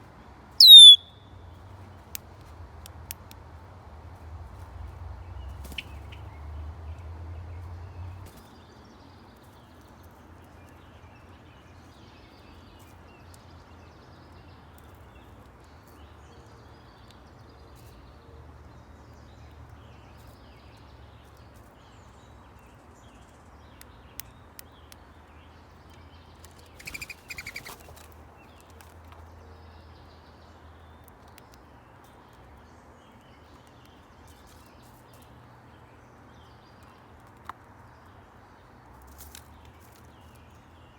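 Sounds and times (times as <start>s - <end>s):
songbirds chirping: 0.0s - 40.9s
bird rapid chattering call: 0.6s - 1.1s, 26.7s - 27.9s.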